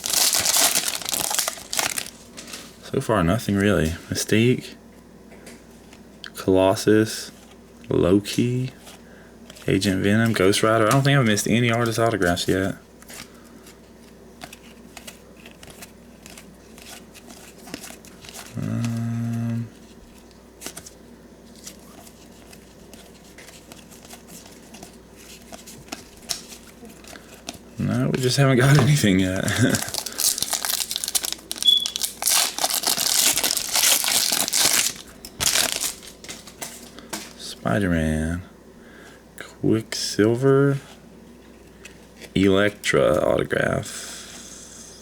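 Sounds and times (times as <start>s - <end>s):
plastic wrapper crinkling and tearing: 0.0s - 2.7s, 28.2s - 36.6s
trading cards clicking and rustling: 0.0s - 2.7s, 9.5s - 27.6s, 28.2s - 37.4s
man humming: 18.5s - 19.8s, 28.6s - 29.9s.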